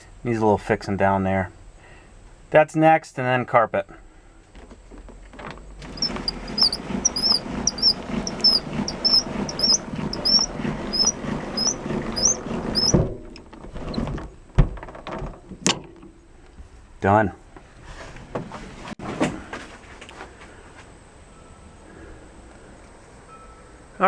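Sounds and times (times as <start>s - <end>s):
rhythmic high squeaking: 5.8s - 13.0s
rubbing scraping noise: 5.8s - 13.1s.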